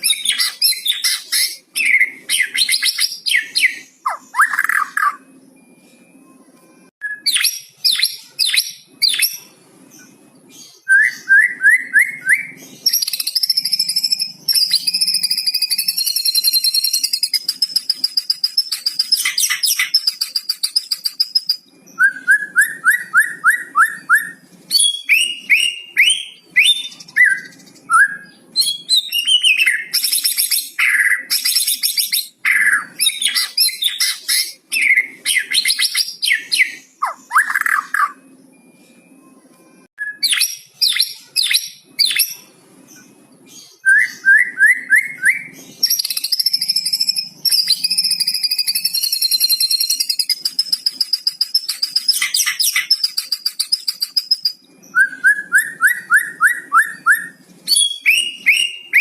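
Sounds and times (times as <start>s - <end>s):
songbird singing: 7.0s - 59.0s.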